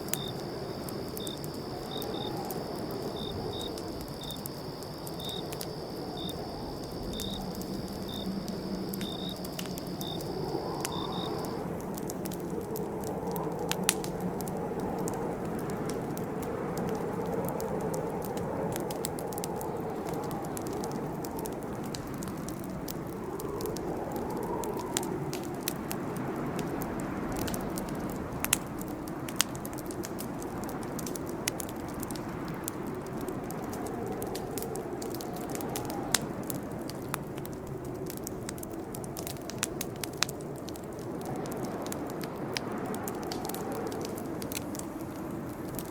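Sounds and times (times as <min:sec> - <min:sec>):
cricket trilling: 0:00.0 - 0:11.7
campfire crackling and popping: 0:00.0 - 0:45.9.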